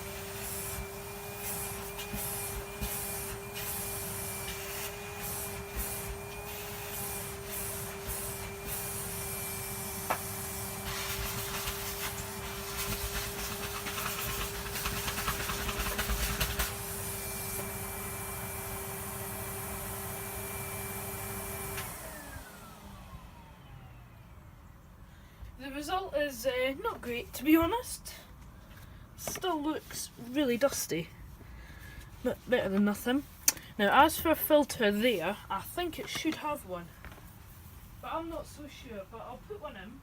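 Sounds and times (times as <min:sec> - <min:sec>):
vacuum cleaner suction hissing: 0:00.0 - 0:23.9.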